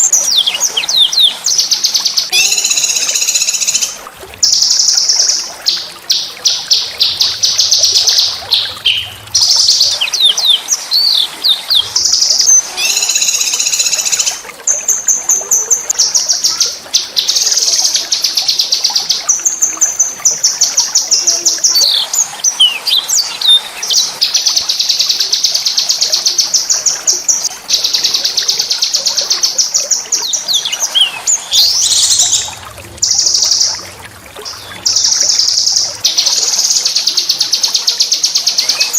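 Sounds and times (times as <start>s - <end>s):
songbird trilling and whistling: 0.0s - 15.0s, 21.1s - 25.5s, 26.6s - 33.8s, 34.6s - 38.9s.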